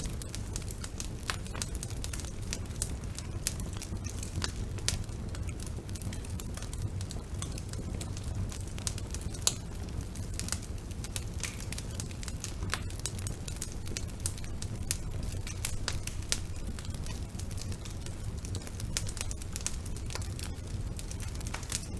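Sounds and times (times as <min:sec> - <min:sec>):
fire crackling and popping: 0:00.0 - 0:21.9
fire flames rumbling: 0:00.0 - 0:21.9.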